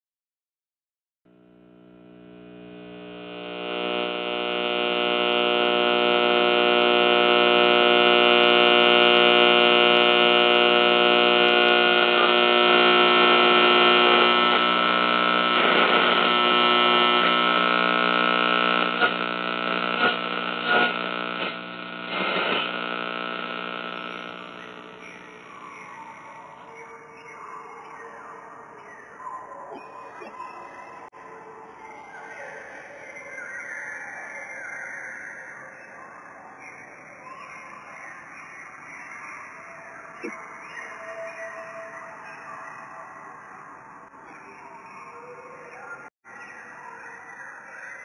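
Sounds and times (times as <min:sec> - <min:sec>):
short crackling sounds: 0:01.8 - 0:25.6.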